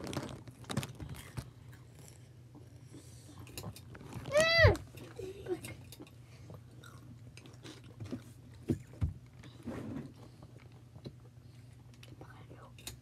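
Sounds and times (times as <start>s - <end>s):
person chewing crunchy snack: 0.0s - 4.2s, 6.7s - 9.0s.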